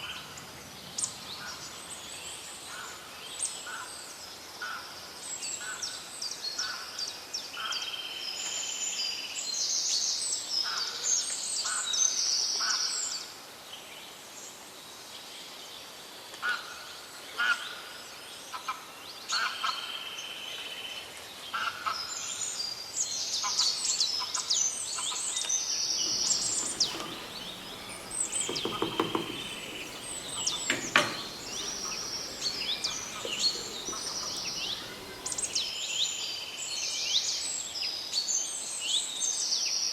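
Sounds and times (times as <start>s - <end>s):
small birds chirping: 25.9s - 35.7s.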